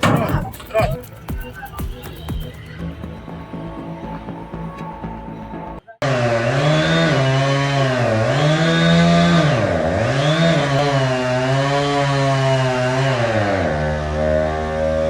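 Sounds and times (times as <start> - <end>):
chainsaw cutting wood: 6.0 - 15.0.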